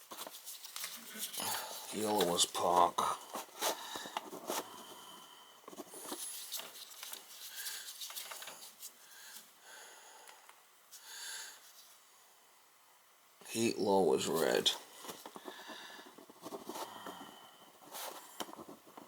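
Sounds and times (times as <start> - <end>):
hands clicking and rustling wiring: 0.0 - 4.6, 5.7 - 8.9.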